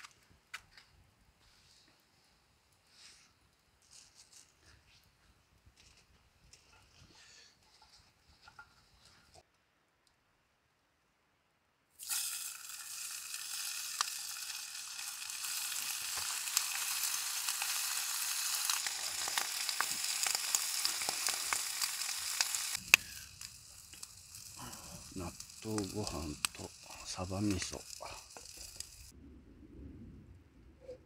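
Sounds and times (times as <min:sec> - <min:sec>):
ham sizzling in a pan: 0:12.0 - 0:29.1.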